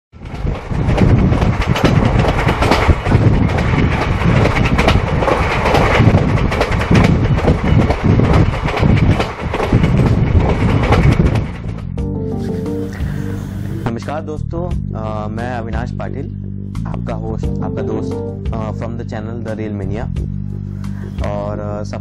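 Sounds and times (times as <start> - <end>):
wheels clattering knocks: 0.2 - 12.0
train coach rumble: 0.2 - 16.0.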